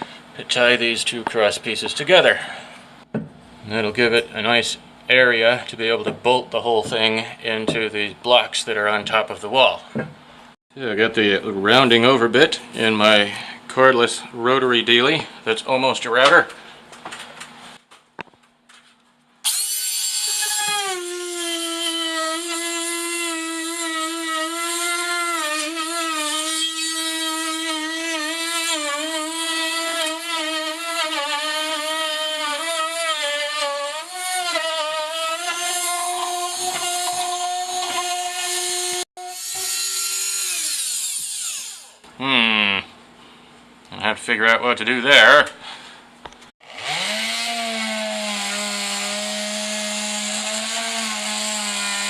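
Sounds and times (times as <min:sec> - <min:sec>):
rotary tool whining: 0:29.8 - 0:42.0.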